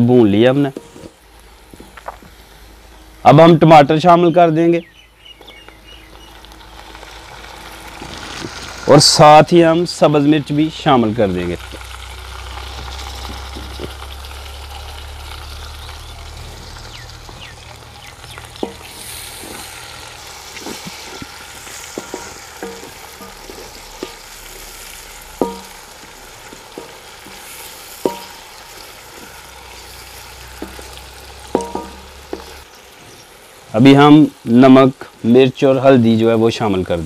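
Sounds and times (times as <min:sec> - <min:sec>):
vegetables sizzling in oil: 0:00.0 - 0:03.4, 0:04.8 - 0:37.0
spatula knocking metal pan: 0:18.6 - 0:19.0, 0:21.8 - 0:24.3, 0:25.4 - 0:28.7, 0:30.6 - 0:32.6.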